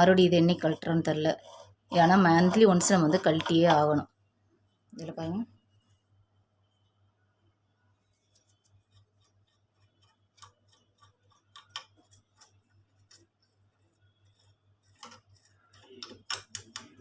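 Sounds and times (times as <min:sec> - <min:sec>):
faint low hum: 0:00.0 - 0:17.0
machine parts clicking and tapping: 0:10.0 - 0:13.4, 0:14.8 - 0:17.0.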